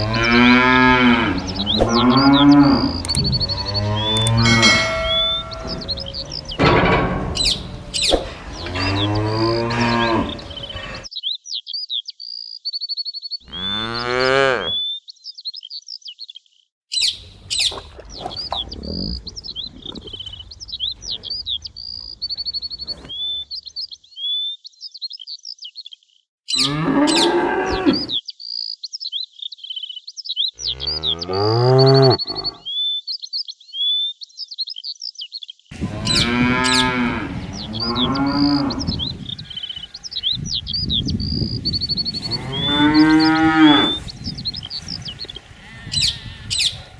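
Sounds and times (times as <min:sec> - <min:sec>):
cows mooing: 0:00.0 - 0:11.1, 0:13.5 - 0:14.8, 0:17.2 - 0:23.4, 0:26.6 - 0:28.2, 0:30.6 - 0:32.6, 0:35.7 - 0:40.3, 0:41.8 - 0:46.9
songbirds chirping: 0:00.0 - 0:46.9.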